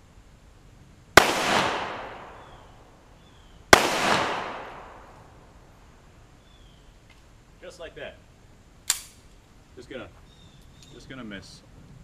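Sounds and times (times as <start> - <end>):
pistol shots with echo: 1.2 - 2.7, 3.7 - 5.3.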